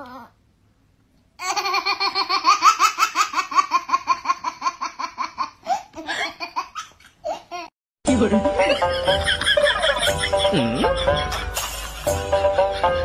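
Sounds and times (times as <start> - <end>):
high-pitched laughter: 8.7 - 13.0.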